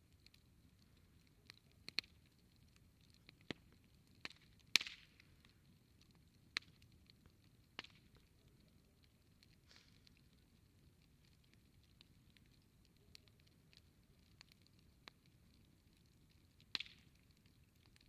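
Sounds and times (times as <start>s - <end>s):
campfire crackling: 0.0s - 18.0s
sharp fire pops: 4.2s - 5.6s, 16.6s - 17.1s.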